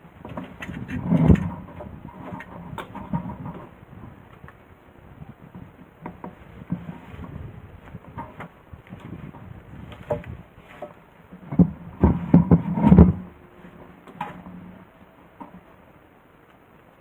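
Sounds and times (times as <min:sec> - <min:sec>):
knocks and clattering: 0:00.2 - 0:03.8, 0:05.5 - 0:14.8.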